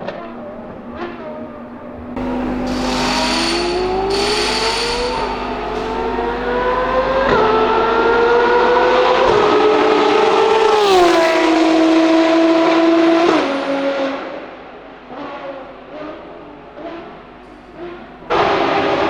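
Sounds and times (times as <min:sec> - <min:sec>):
race car accelerating past: 0:02.2 - 0:14.3.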